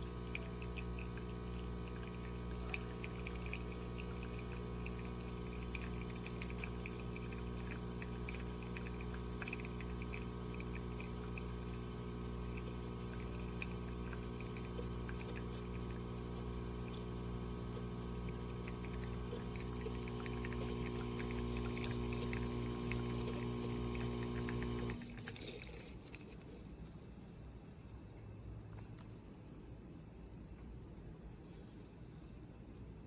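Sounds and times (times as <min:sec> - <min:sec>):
espresso machine humming: 0:00.0 - 0:25.1
coffee pouring and dripping: 0:00.0 - 0:26.5.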